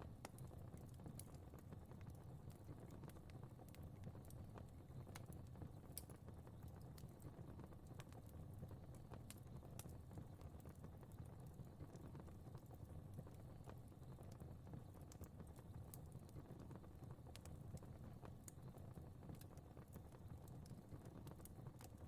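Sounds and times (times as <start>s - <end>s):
fire crackling: 0.1s - 22.0s.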